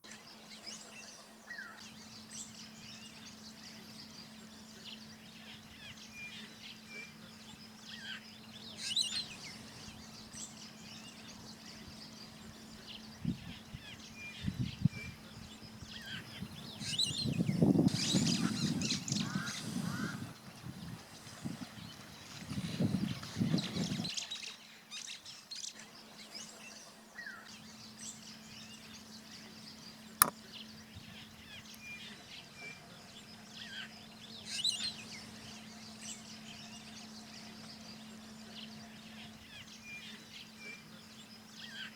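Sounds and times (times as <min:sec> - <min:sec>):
wild birds chirping and whistling: 0:00.3 - 0:41.9.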